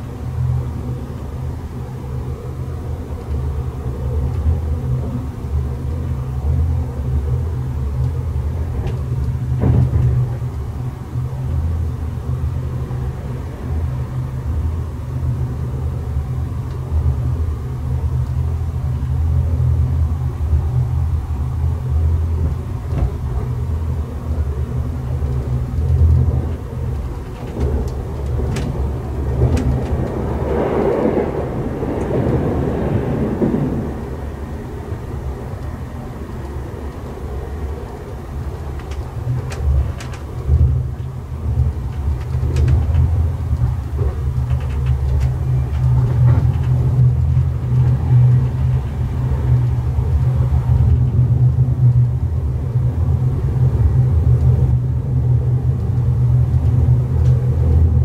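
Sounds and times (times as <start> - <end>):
train rumbling: 0.0 - 58.0
rushing air: 28.1 - 38.7.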